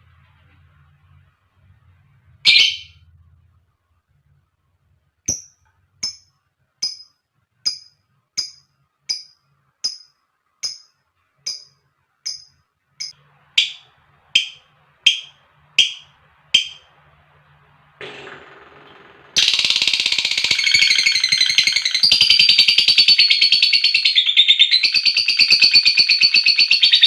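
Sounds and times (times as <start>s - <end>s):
bird chirping: 2.4s - 3.1s, 5.3s - 16.9s, 19.4s - 27.0s.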